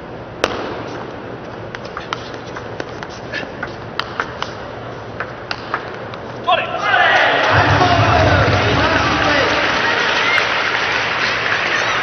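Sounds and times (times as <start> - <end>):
hall murmur: 7.5 - 10.0.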